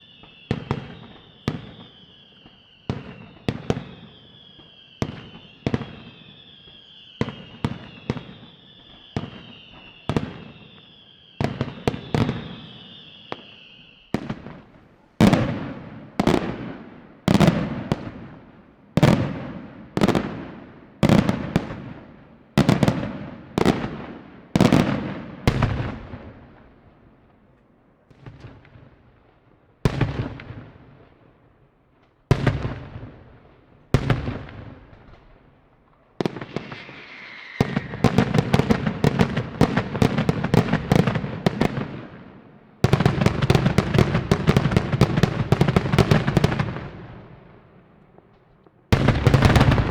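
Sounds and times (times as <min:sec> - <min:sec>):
firework whistles: 0:00.0 - 0:15.5, 0:36.2 - 0:41.1
deep firework booms: 0:48.9 - 0:49.9
sharp firework bangs: 0:48.9 - 0:49.9.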